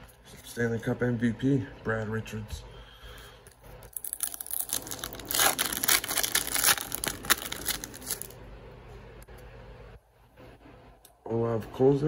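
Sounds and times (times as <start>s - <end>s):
foil wrapper crinkling and tearing: 3.8s - 8.4s.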